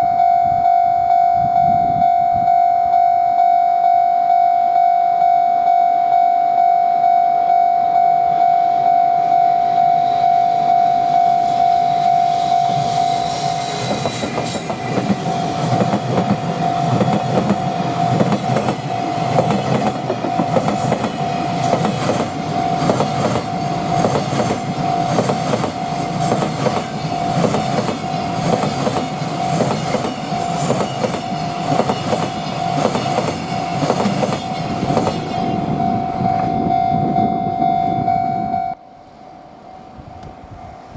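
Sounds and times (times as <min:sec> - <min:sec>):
freight train passing: 0:00.0 - 0:40.9
pulsing warning tone: 0:00.0 - 0:40.9
wheels clacking over rail joints: 0:13.8 - 0:35.4.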